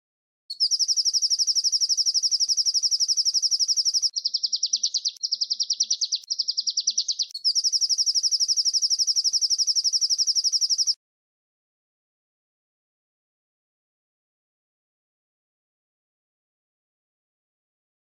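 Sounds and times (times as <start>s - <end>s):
songbird trilling: 0.5s - 11.0s.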